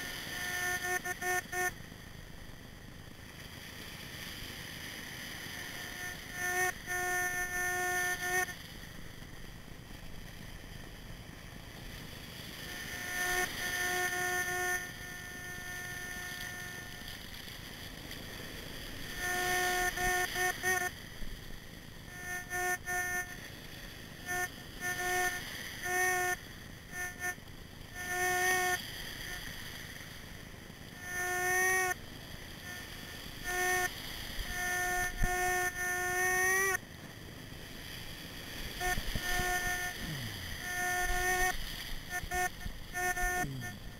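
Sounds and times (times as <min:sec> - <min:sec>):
steady hiss: 0:00.0 - 0:43.9
metal detector beeps: 0:38.8 - 0:43.9.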